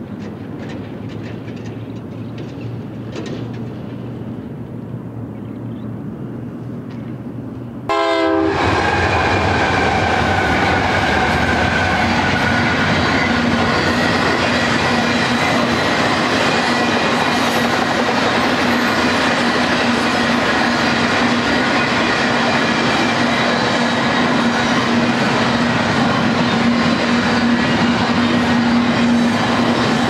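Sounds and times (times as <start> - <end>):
diesel locomotive engines: 0.0 - 30.0
train wheels rolling on rails: 0.0 - 30.0
locomotive air horn blast: 7.9 - 11.4.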